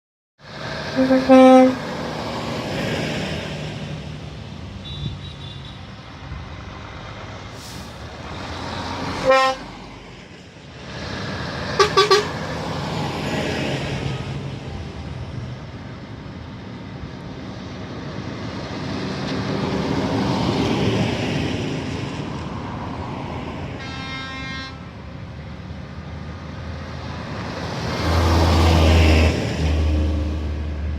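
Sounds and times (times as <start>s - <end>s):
tractors driving past: 0.4s - 30.9s
horn tooting: 0.9s - 1.8s, 4.8s - 5.9s, 9.2s - 9.6s, 11.8s - 12.4s, 23.8s - 24.9s
deep loud engine passing: 25.6s - 30.9s.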